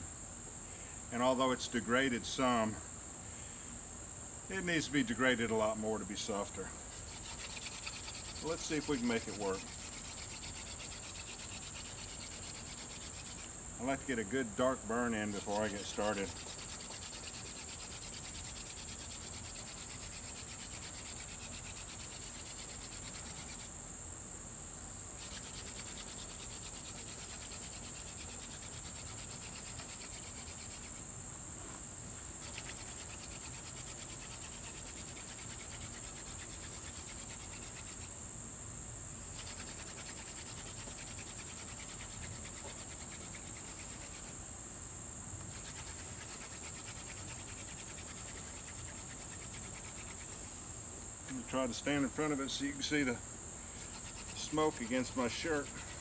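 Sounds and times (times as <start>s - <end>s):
crickets trilling: 0.0s - 56.0s
hand drill spindle rubbing: 6.9s - 14.1s, 15.1s - 23.6s, 25.2s - 31.0s, 32.4s - 38.1s, 39.3s - 44.3s, 45.5s - 50.5s, 53.8s - 56.0s.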